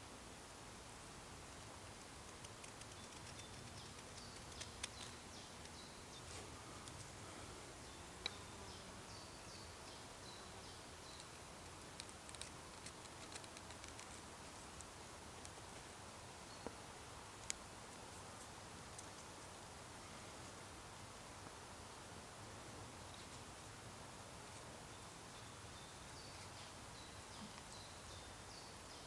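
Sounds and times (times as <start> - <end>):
faint woodland ambience: 0.0 - 29.0
small bird chirping: 2.3 - 6.4, 7.8 - 14.3, 24.9 - 29.0
light ticks: 17.4 - 17.6.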